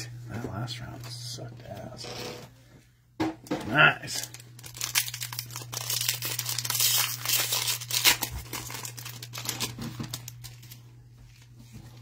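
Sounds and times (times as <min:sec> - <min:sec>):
steady electrical hum: 0:00.0 - 0:12.0
foil wrappers crinkling and tearing: 0:04.0 - 0:11.5.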